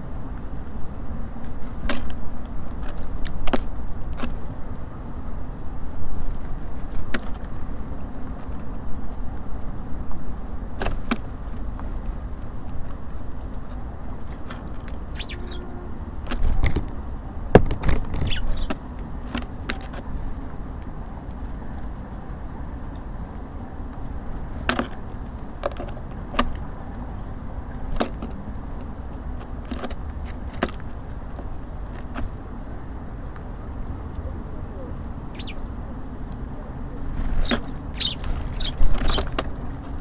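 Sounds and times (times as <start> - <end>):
low rumble of road traffic: 0.0 - 40.0
birds pecking and landing taps: 1.4 - 5.2, 17.6 - 32.5, 35.0 - 40.0
short high bird chirps: 15.1 - 15.8, 18.3 - 18.7, 35.4 - 35.6, 37.4 - 39.3.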